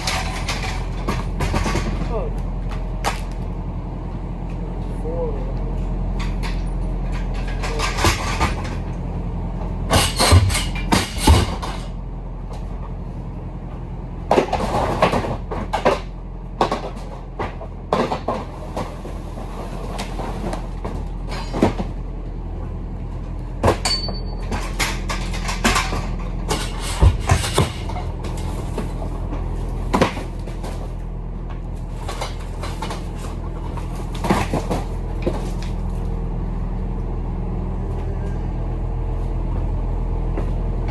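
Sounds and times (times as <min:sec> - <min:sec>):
knocks and rattles: 0:00.0 - 0:03.5, 0:06.2 - 0:13.0, 0:14.2 - 0:19.0, 0:23.2 - 0:36.0
diesel engine humming: 0:00.0 - 0:40.9.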